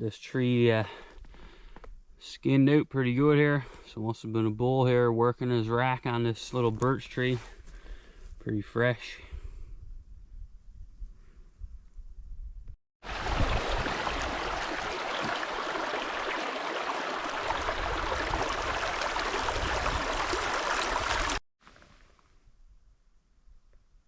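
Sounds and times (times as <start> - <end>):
stream running water: 13.0 - 21.4.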